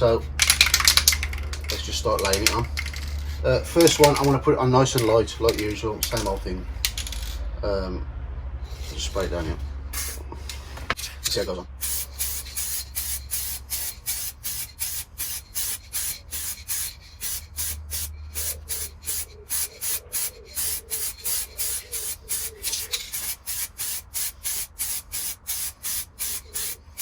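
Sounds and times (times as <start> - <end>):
aerosol spray can hissing: 10.0 - 10.7, 11.8 - 27.0.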